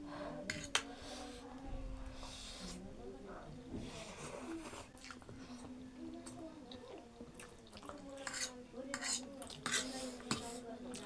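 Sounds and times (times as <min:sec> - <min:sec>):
chewing noodles: 0:04.3 - 0:11.0
utensil clinking on bowl: 0:08.2 - 0:10.6.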